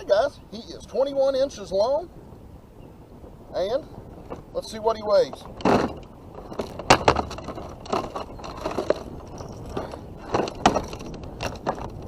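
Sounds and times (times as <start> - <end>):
rustling of fishing gear: 4.0 - 12.0
sharp clicks and knocks: 5.3 - 12.0.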